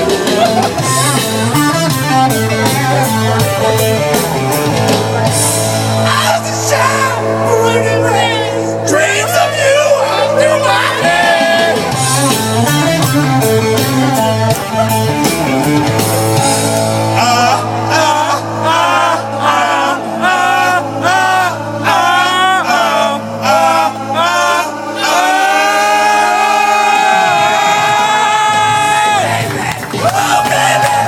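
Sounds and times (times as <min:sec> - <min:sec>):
rock band playing: 0:00.0 - 0:31.0
person singing: 0:17.0 - 0:26.3.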